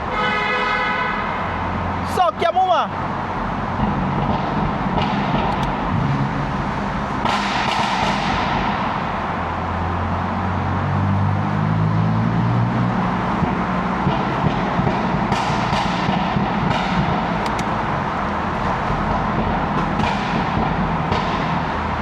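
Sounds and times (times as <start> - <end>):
car engine running: 3.7 - 9.5, 13.0 - 22.0.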